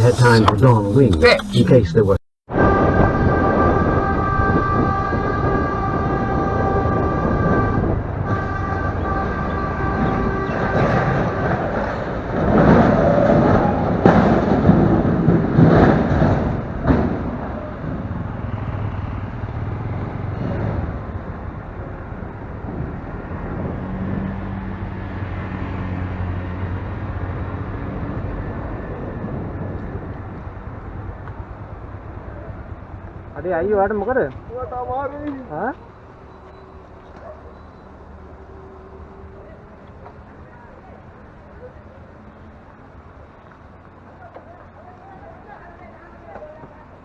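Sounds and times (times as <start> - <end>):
vehicle engine humming: 0.0 - 2.2, 30.1 - 47.0
road and wind noise: 0.0 - 47.0
traffic noise: 0.0 - 47.0
vehicle horn blasts: 2.6 - 11.4.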